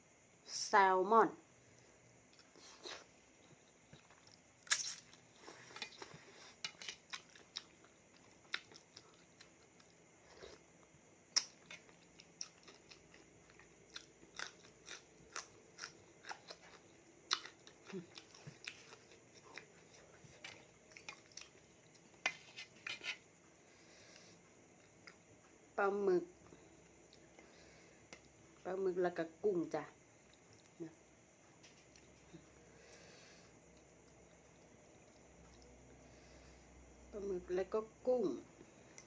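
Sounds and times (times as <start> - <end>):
person chewing wet food: 1.7 - 22.5, 24.1 - 25.5, 30.2 - 31.0, 33.6 - 36.9, 38.6 - 39.0.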